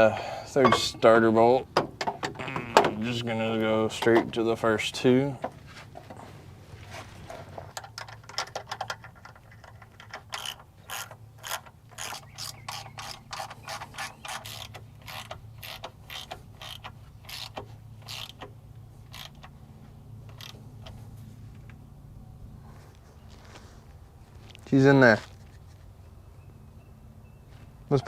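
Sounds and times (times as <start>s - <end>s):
ratchet wrench clicking: 10.0s - 18.5s, 19.1s - 19.5s, 20.3s - 20.6s.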